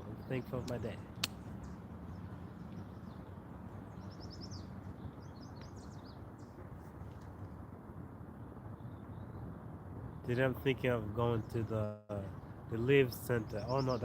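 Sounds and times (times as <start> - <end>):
songbird chirping: 0.0 - 6.6, 11.2 - 14.0
sharp click: 0.6 - 1.4.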